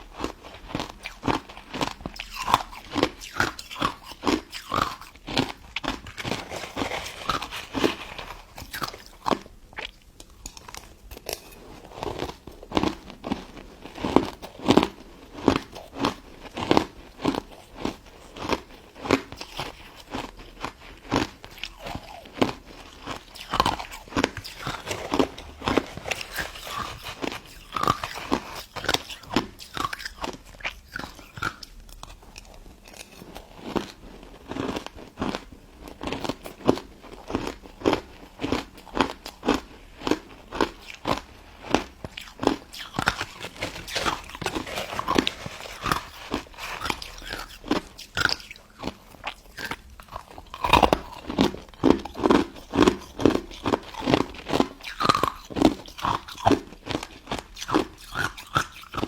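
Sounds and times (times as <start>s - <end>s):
crunching and chewing ice dessert: 0.0s - 59.0s.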